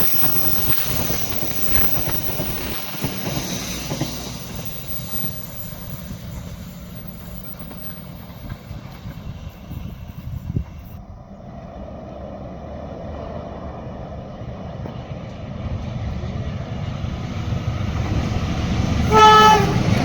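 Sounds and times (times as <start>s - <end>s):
wheels clattering over rail joints: 0.0s - 10.6s
train wheels rumbling on rails: 0.0s - 20.0s.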